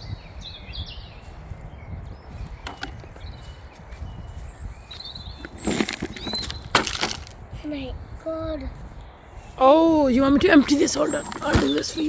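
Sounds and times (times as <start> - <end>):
wind rumbling on microphone: 0.0 - 12.0
clatter of plastic knocks: 2.6 - 3.2.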